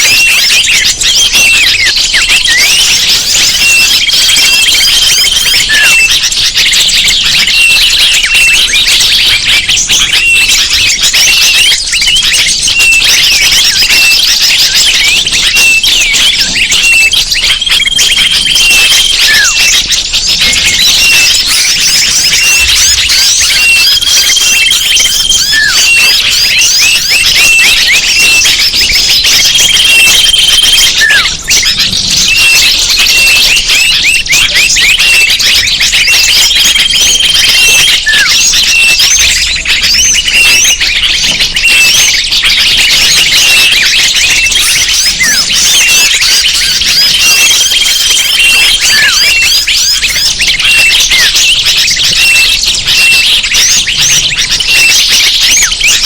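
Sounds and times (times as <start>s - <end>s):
small birds chirping chorus: 0.0s - 56.0s
short held whistle: 21.0s - 28.4s, 29.7s - 31.6s, 37.5s - 40.8s, 45.1s - 51.3s.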